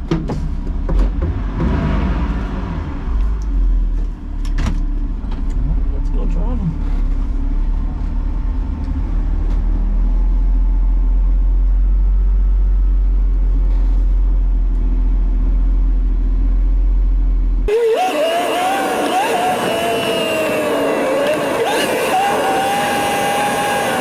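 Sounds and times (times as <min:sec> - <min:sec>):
race car engine running: 0:17.6 - 0:24.0.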